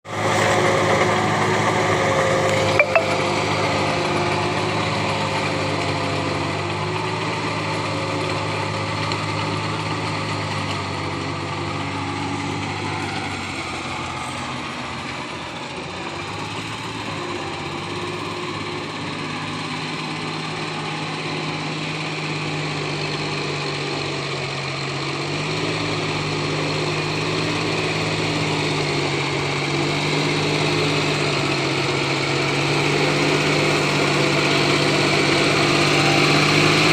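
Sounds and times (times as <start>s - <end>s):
tractor engine running: 0.1s - 36.9s.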